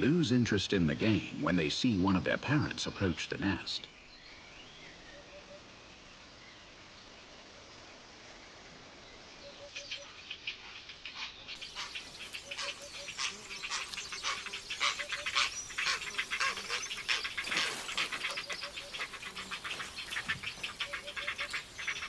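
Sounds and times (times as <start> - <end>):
heron chicks begging chatter: 9.6 - 22.0
low repeated bird notes: 11.6 - 22.0.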